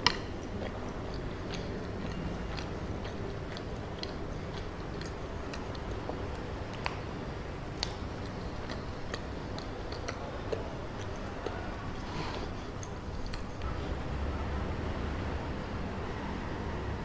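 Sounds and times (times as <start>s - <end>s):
sticky chewing mouth clicks: 0.0s - 7.1s, 7.8s - 13.7s
low steady hum: 0.0s - 17.0s.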